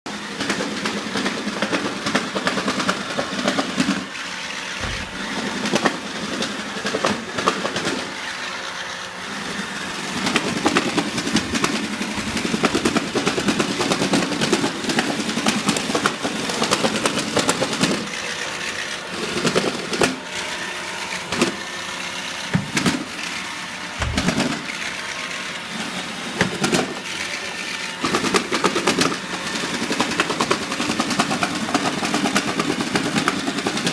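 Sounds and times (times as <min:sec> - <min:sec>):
robot vacuum whirring: 0:00.2 - 0:33.9
robot vacuum clunking: 0:04.8 - 0:05.4, 0:24.0 - 0:24.7.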